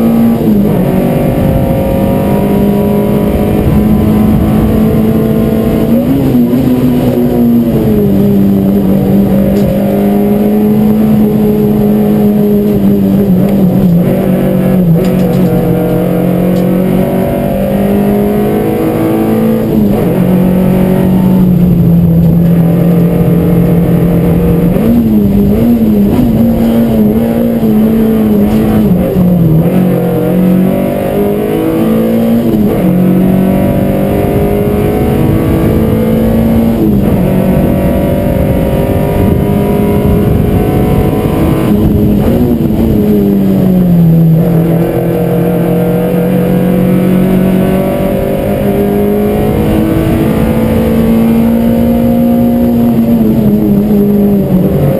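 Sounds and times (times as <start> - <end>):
car engine revving hard: 0.0 - 54.9.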